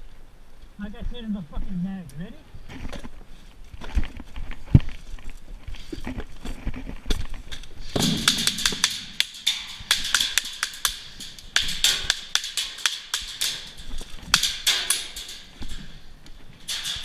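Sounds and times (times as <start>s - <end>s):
airsoft guns firing: 7.9s - 13.7s.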